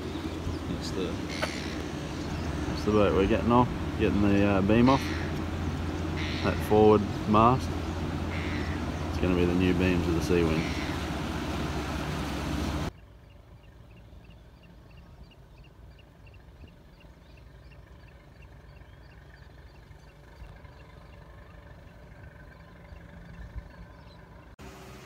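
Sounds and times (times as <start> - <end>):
small bird chirping: 0.0 - 2.9
low steady rumble: 0.0 - 25.0.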